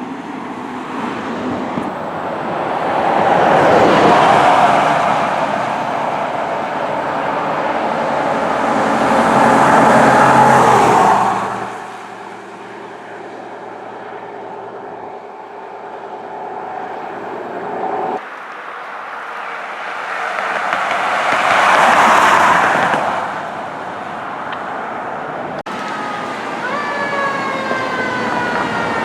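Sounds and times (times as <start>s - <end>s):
quieter vehicle sound: 0.0s - 28.4s
fire truck driving past: 1.8s - 18.2s, 25.6s - 29.0s.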